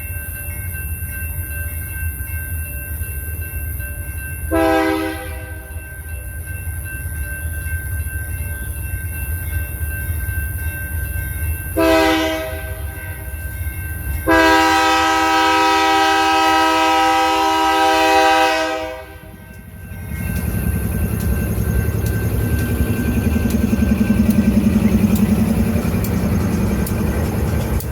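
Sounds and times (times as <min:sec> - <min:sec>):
locomotive air horn blasts: 0:04.5 - 0:05.6, 0:11.8 - 0:12.9, 0:14.3 - 0:19.4
locomotive engine rumble: 0:12.5 - 0:27.9.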